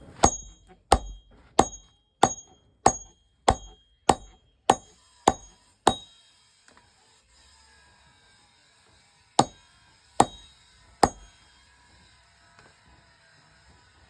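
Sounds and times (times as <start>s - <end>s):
hammer striking metal on anvil: 0.0s - 6.2s, 9.4s - 9.6s, 10.2s - 11.4s.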